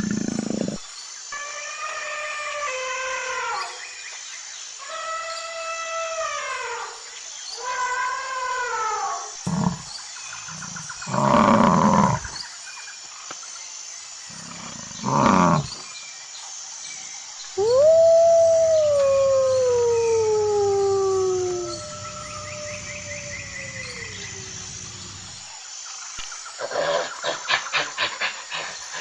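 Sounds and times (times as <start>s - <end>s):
animal howling: 7.6s - 9.9s, 14.3s - 15.7s, 17.6s - 25.4s.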